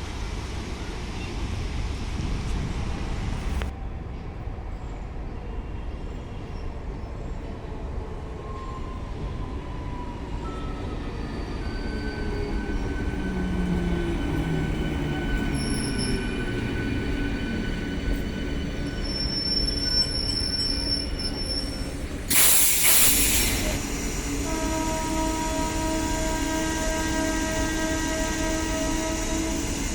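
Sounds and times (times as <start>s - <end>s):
train rumble: 0.0s - 29.9s
train wheels squealing: 4.8s - 29.9s
loud hiss: 22.2s - 26.6s.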